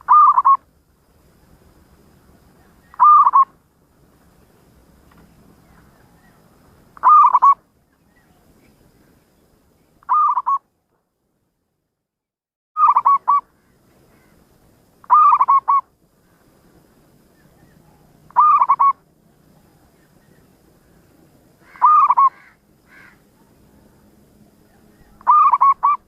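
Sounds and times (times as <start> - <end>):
dove cooing: 0.0 - 0.6, 2.6 - 3.5, 7.0 - 7.6, 10.1 - 10.6, 12.8 - 13.5, 15.0 - 15.8, 17.5 - 19.0, 21.6 - 23.6, 24.6 - 26.0.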